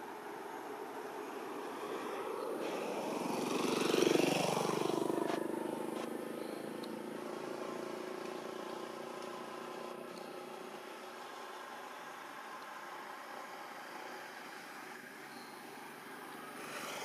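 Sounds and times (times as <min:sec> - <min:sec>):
vehicle driving past: 0:00.7 - 0:10.0.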